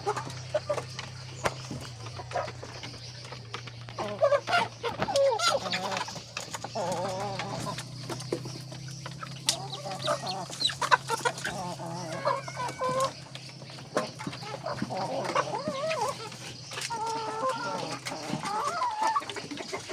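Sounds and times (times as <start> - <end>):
chickens clucking and calling: 0.0 - 19.9.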